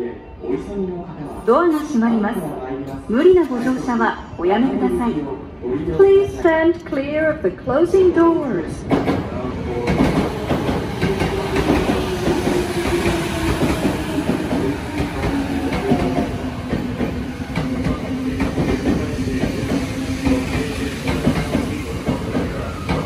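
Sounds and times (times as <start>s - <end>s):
train wheels rumbling and clattering: 8.7s - 23.0s.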